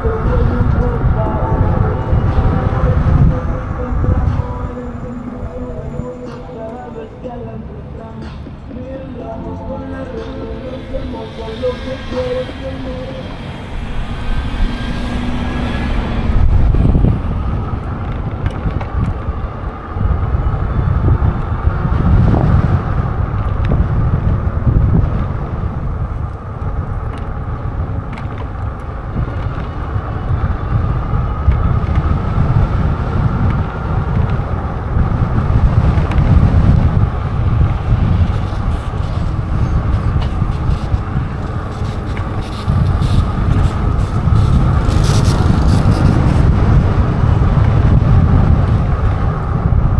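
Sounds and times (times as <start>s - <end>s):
wind on microphone: 0.0s - 7.3s, 10.0s - 49.9s
electric hub motor whine: 10.5s - 49.9s.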